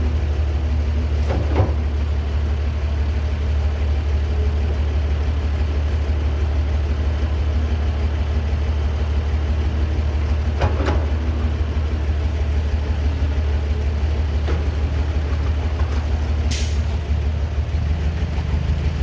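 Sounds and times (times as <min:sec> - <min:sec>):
excavator diesel engine droning: 0:00.0 - 0:19.0.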